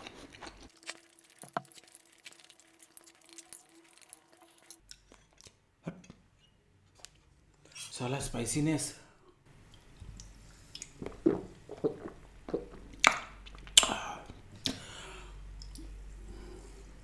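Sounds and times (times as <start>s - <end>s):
person gulping fizzy drink: 10.8s - 14.8s
person gasping: 13.8s - 15.4s.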